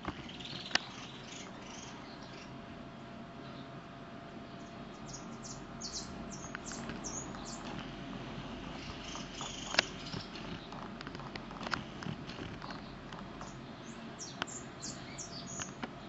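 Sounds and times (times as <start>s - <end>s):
small birds chirping: 0.0s - 16.0s
steady low rumble: 0.0s - 16.0s
sharp click: 9.4s - 13.6s.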